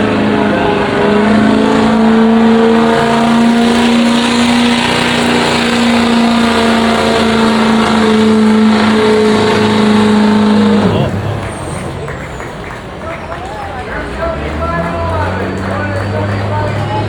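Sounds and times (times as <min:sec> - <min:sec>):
truck engine at full throttle: 0:00.0 - 0:17.0.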